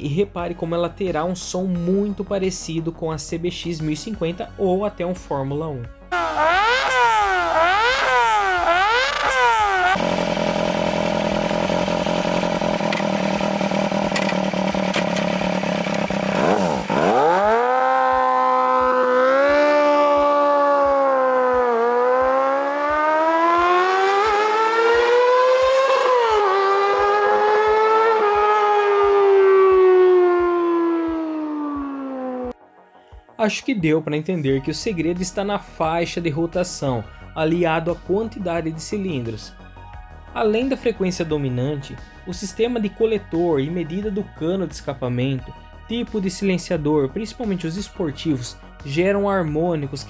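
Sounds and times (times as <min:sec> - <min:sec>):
high-revving engine: 0:06.1 - 0:32.5
motorcycle engine revving: 0:06.1 - 0:32.6.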